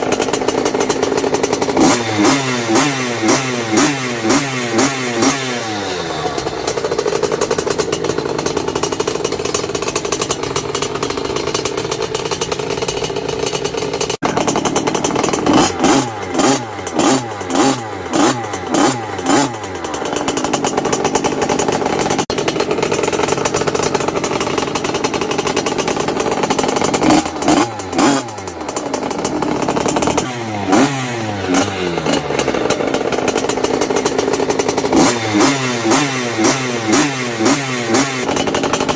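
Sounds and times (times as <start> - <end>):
two-stroke engine throttle blips: 0.0 - 38.9.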